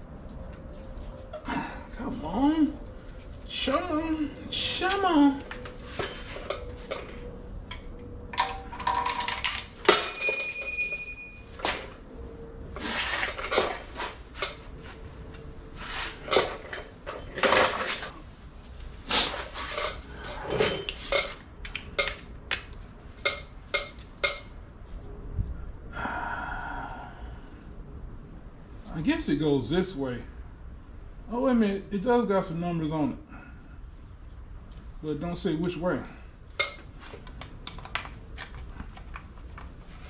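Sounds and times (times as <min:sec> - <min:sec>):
metal tools clinking and clanking: 0:05.4 - 0:12.0, 0:12.8 - 0:14.7, 0:15.9 - 0:18.2, 0:19.3 - 0:22.3, 0:23.2 - 0:24.6, 0:36.6 - 0:36.9.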